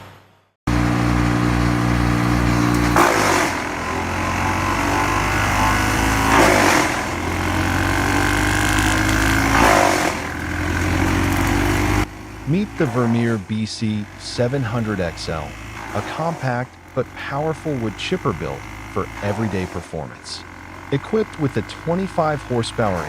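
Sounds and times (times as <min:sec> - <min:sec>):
brush chipper engine running: 0:00.7 - 0:23.0
branches being chipped: 0:01.6 - 0:13.2.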